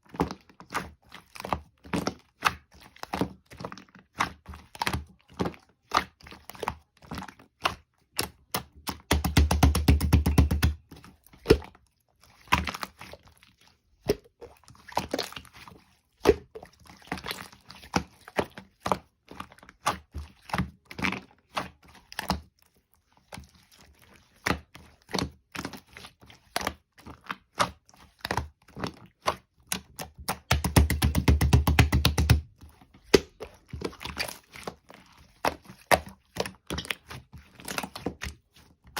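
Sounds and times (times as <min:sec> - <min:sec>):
slime clicking and popping: 0:30.2 - 0:32.4.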